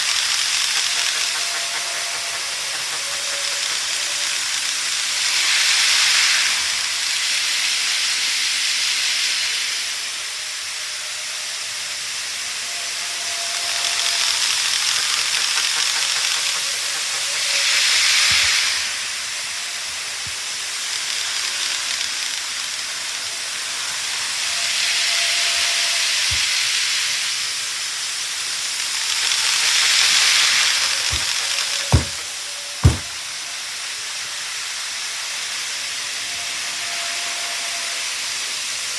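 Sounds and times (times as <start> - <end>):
model train running: 0.0 - 38.9.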